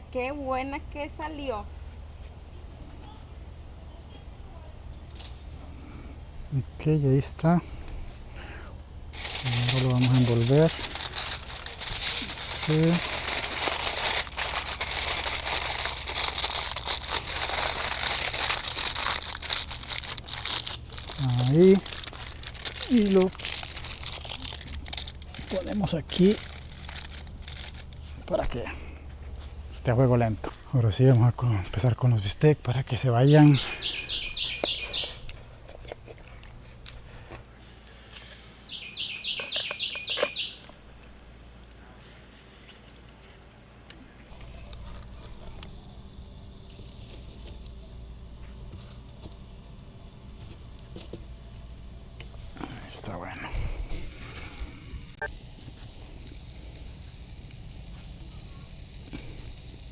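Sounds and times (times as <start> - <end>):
insect chorus: 0.0 - 59.9
aluminium foil crinkling: 9.1 - 28.4, 39.0 - 40.8, 44.3 - 45.8
bird call with down-slurred notes: 33.5 - 35.2, 38.7 - 40.6.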